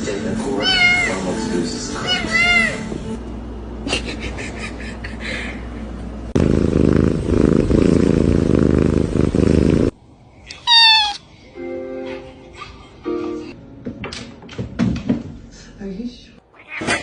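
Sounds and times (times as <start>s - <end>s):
cat purring loudly: 6.3s - 10.0s.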